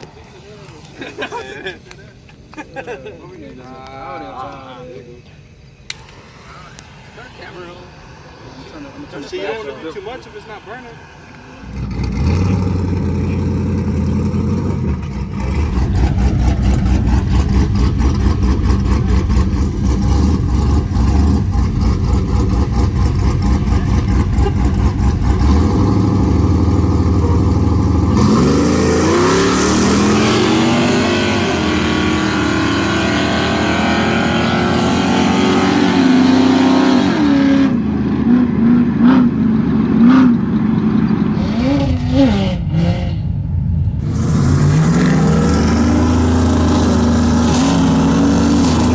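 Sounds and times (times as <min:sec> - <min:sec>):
truck engine revving hard: 0:11.6 - 0:48.9.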